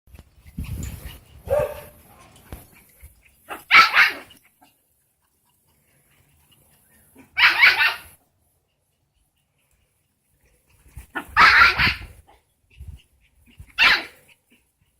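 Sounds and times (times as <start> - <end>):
small dog yapping: 1.4 - 2.0, 3.5 - 4.4, 7.2 - 8.2, 11.1 - 12.3, 13.5 - 14.3.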